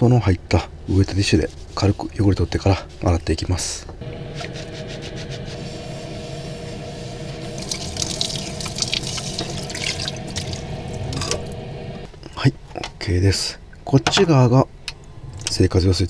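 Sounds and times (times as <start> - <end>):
steady hum: 0.7 - 12.2
water running from tap: 4.0 - 12.1
water splashing: 4.0 - 12.1.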